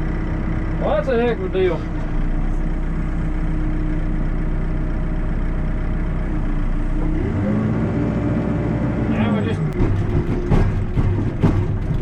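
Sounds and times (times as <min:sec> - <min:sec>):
diesel engine revving: 0:00.0 - 0:12.0.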